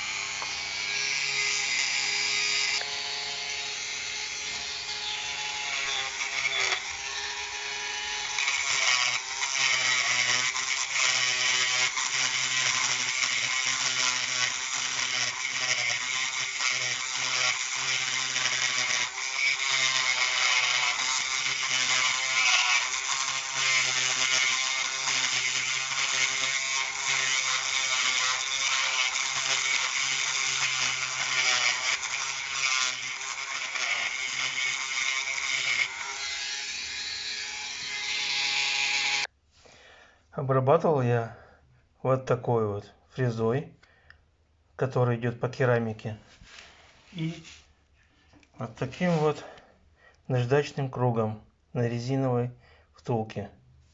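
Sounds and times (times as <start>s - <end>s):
rotary tool grinding plastic: 0.0s - 39.3s.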